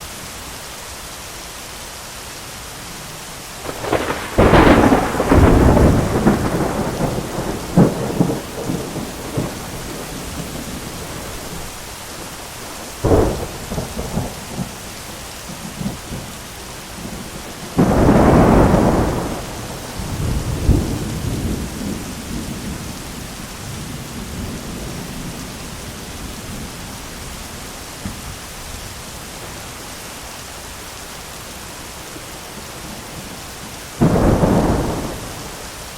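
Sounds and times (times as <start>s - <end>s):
heavy rain: 0.0s - 35.9s
thunder cracking and rumbling: 3.6s - 14.9s, 17.0s - 25.5s, 34.0s - 35.8s.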